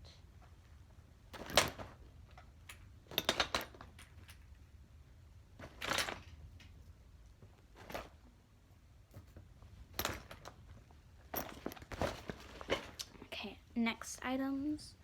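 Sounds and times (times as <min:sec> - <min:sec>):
backpack rustle: 0:11.3 - 0:13.2.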